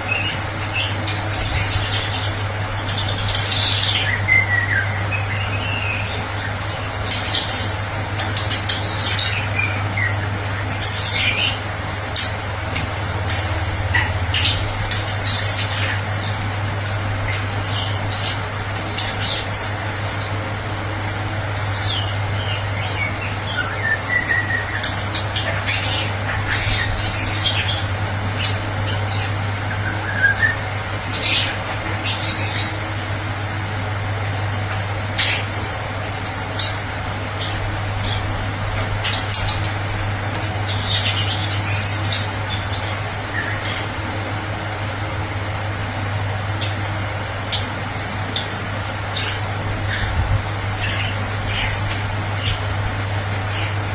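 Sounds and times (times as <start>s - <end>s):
steady low hum: 0.0s - 53.9s
starling singing: 21.0s - 33.4s, 36.4s - 44.0s, 47.4s - 53.9s.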